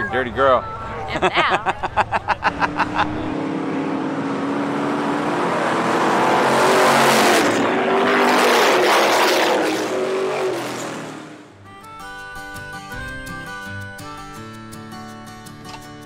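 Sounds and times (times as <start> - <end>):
race car engines: 0.0 - 11.6.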